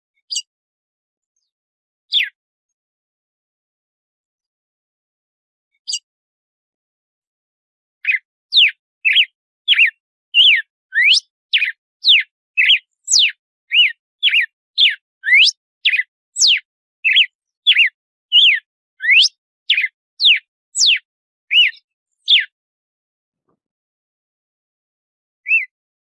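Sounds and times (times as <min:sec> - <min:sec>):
bird singing whistled notes: 0:00.2 - 0:00.5, 0:02.1 - 0:02.4, 0:05.8 - 0:06.1, 0:08.0 - 0:22.6, 0:25.4 - 0:25.8.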